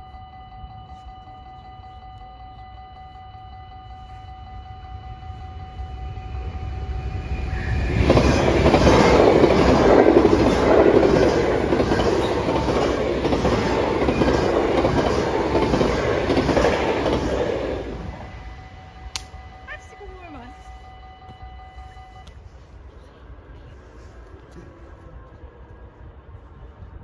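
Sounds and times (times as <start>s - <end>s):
crossing warning bells: 0.0s - 22.9s
train wheels clattering on rails: 7.7s - 18.2s.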